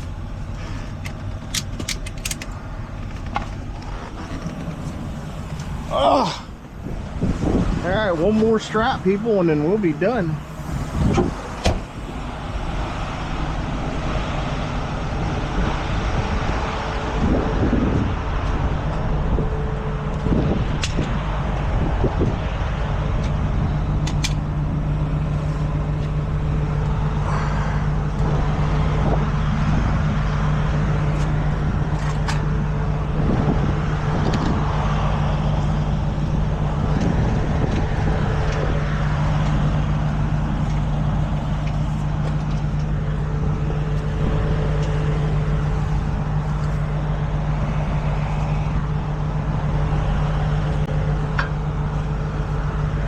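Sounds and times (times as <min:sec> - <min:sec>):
metallic clicks and clanks of straps: 0:00.0 - 0:05.7
truck engine idling: 0:00.0 - 0:53.0.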